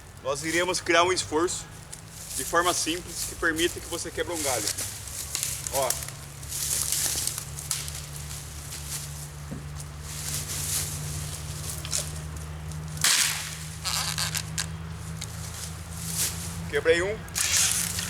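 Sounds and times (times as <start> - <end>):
branch cracking and rustling: 1.7 - 18.0
branch snapping: 4.5 - 16.6, 17.2 - 18.0.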